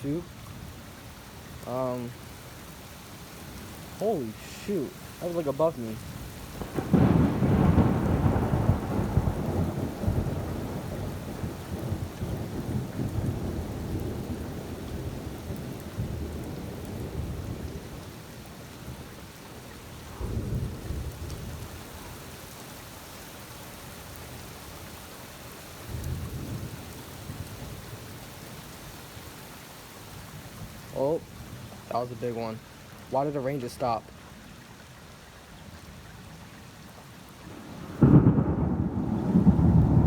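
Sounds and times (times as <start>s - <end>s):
rain hissing: 1.6s - 2.5s, 3.2s - 34.2s, 37.2s - 40.0s
thunder rumbling: 6.6s - 18.0s, 20.1s - 21.8s, 37.5s - 40.0s.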